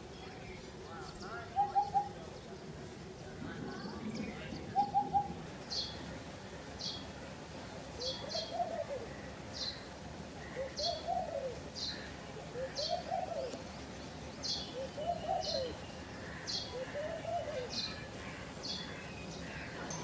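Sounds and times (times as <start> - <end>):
dove cooing: 1.4 - 2.3, 3.5 - 5.6, 8.0 - 9.3, 10.4 - 13.6, 14.6 - 19.8.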